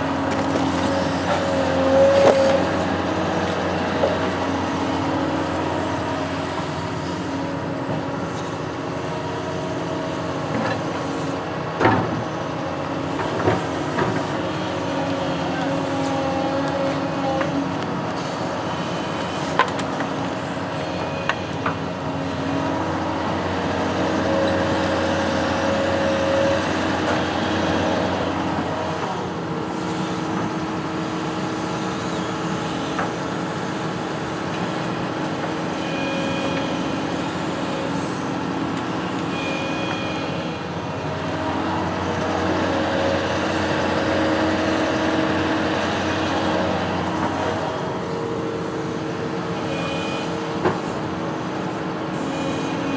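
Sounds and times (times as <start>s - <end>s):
construction machine engine running: 0.0s - 52.9s.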